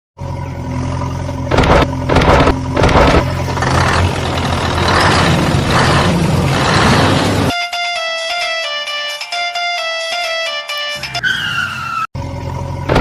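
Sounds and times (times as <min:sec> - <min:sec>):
heavy engine idling and revving: 0:00.2 - 0:07.5, 0:12.2 - 0:13.0.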